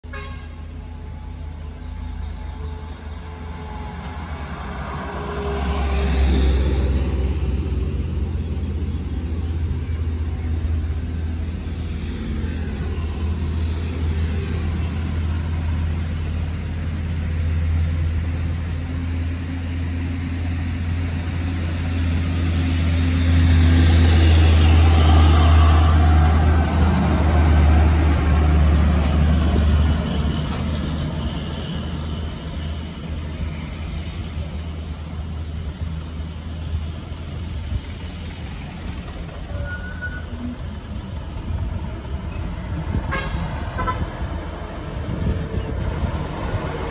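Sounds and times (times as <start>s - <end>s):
heavy truck engine drone: 0.0s - 46.9s.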